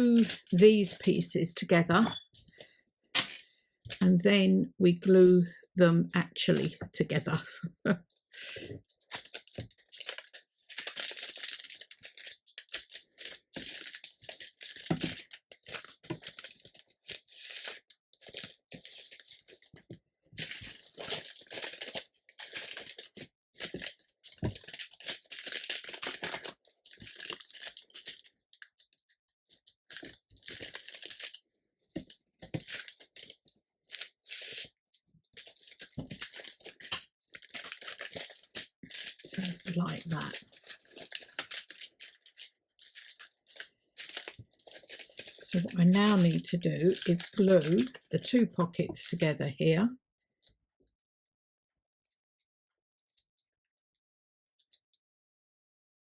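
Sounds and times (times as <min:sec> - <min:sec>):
parchment paper crinkling: 0:00.0 - 0:01.2, 0:08.3 - 0:49.2.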